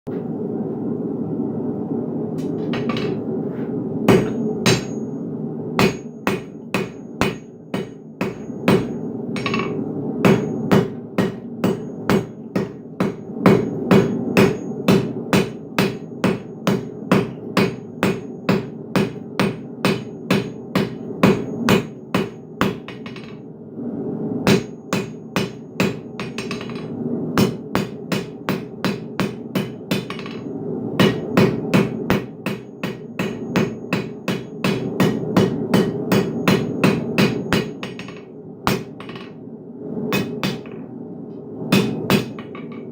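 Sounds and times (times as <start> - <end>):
low hum: 0.1 - 42.9
hammer striking iron on anvil: 4.1 - 5.0, 5.8 - 23.4, 24.5 - 30.4, 31.0 - 39.3, 40.2 - 40.8, 41.7 - 42.8.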